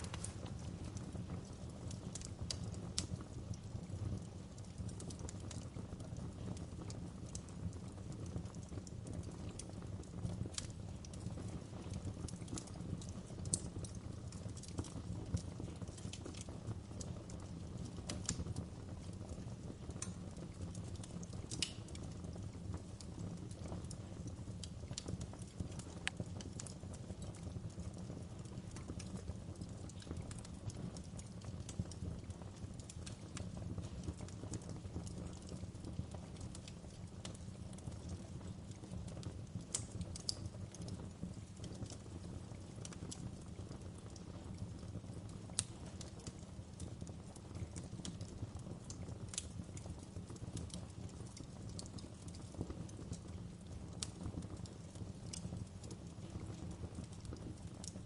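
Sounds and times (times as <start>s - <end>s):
low fire rumble: 0.0s - 58.0s
wood fire crackling: 0.0s - 58.0s.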